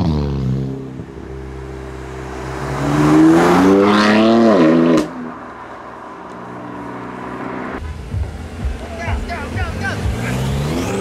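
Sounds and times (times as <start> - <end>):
car engine accelerating past: 0.0 - 11.0
exhaust crack: 2.3 - 11.0.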